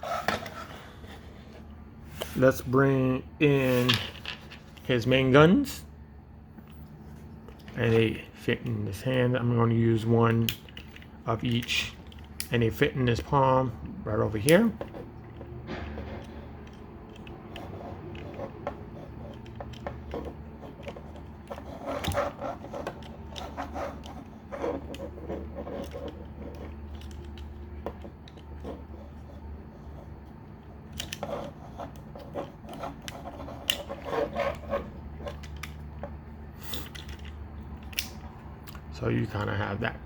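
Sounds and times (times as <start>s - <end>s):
steady low hum: 0.0s - 40.0s
plastic toy parts clicking: 25.8s - 28.5s, 36.8s - 38.2s.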